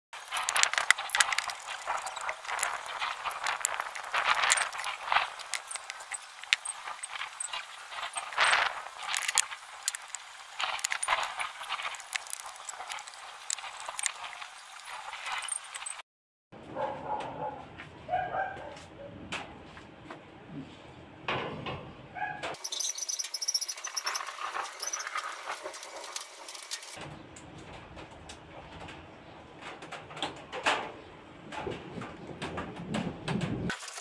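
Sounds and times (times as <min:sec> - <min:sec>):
tools and metal parts clinking: 0:00.2 - 0:14.2, 0:15.2 - 0:16.0, 0:22.6 - 0:27.0.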